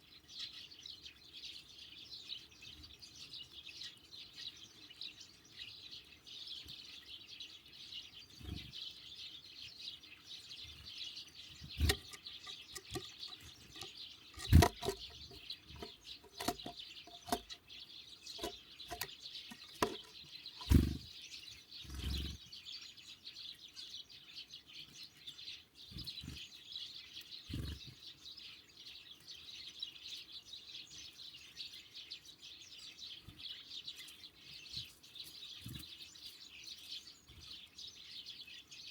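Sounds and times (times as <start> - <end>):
songbirds chirping and twittering: 0.0 - 38.9
knocks at bird feeder: 11.8 - 17.6, 18.4 - 21.0
wings fluttering: 18.4 - 21.1.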